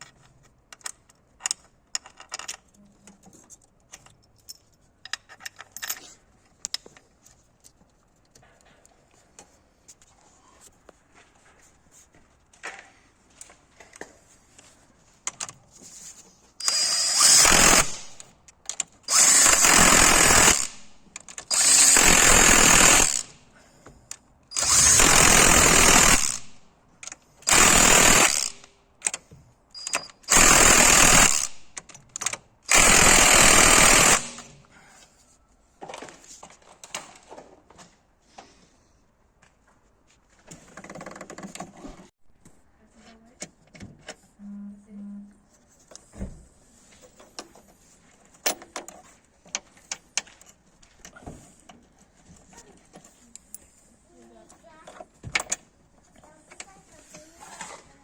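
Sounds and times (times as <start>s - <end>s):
power tool running: 16.6s - 18.2s, 19.1s - 20.8s, 21.5s - 23.3s, 24.6s - 26.6s, 27.5s - 28.7s, 30.3s - 31.6s, 32.7s - 34.5s.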